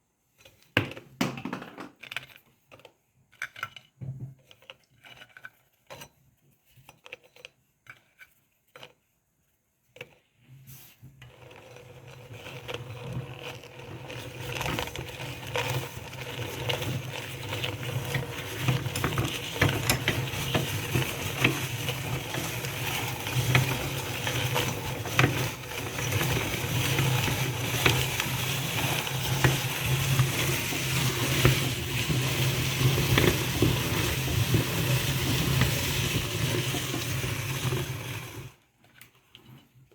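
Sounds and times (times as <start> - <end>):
cookies crunching in grinder: 11.2 - 38.6
meat grinder motor humming: 11.4 - 38.6.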